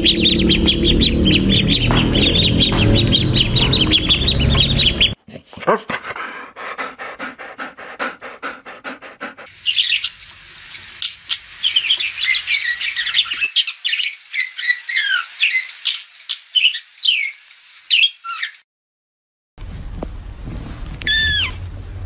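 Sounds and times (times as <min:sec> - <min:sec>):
budgerigars chirping and warbling: 0:00.0 - 0:05.2, 0:09.6 - 0:17.3, 0:21.1 - 0:21.6
fast rhythmic pulsing: 0:00.0 - 0:05.2.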